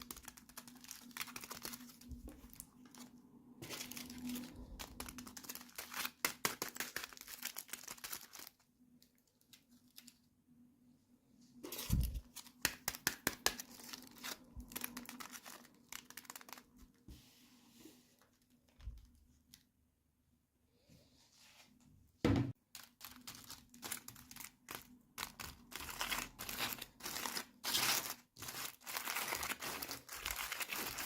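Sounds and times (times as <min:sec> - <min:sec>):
plastic packaging crinkling and tearing: 0:00.0 - 0:10.2, 0:11.7 - 0:17.0, 0:22.6 - 0:31.0.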